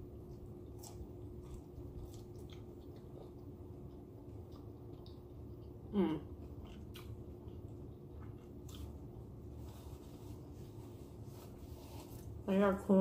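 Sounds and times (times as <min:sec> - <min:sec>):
chewing crunchy taco shell: 0:00.2 - 0:09.3.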